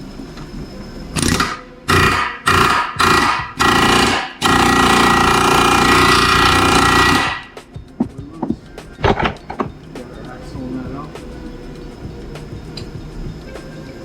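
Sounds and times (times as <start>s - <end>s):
impact wrench hammering: 1.2s - 10.1s.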